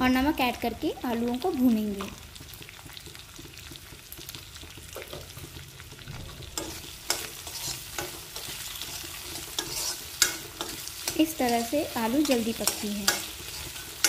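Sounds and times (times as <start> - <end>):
potatoes sizzling in hot oil: 0.0 - 14.0
steel spoon scraping a pan: 6.1 - 14.0.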